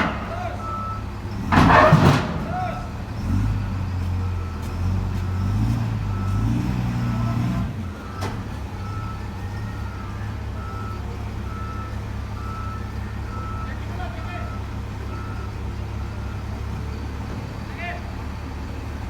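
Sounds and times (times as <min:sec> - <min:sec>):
diesel engine under load: 0:00.0 - 0:19.0
reverse alarm beeping: 0:08.0 - 0:16.4.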